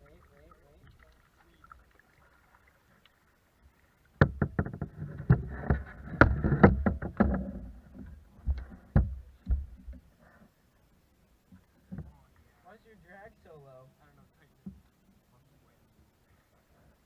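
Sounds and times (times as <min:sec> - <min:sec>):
knocks and thumps on a kayak: 0:04.2 - 0:10.1, 0:11.5 - 0:12.3
rumbling handling noise: 0:04.2 - 0:10.1.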